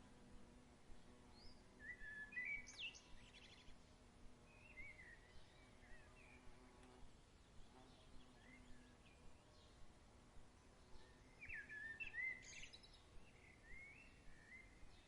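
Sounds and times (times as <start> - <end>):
background hiss: 0.0 - 15.0
songbird calls: 1.0 - 3.8, 4.5 - 6.6, 7.6 - 9.8, 10.8 - 15.0.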